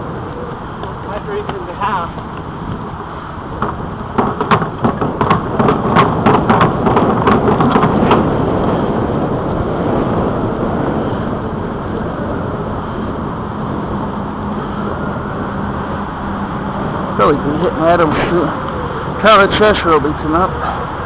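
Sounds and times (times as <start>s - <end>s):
bicycle tyre noise: 0.0s - 21.0s
wind rushing over microphone: 0.0s - 21.0s
sharp clicks and rattles: 3.6s - 8.5s.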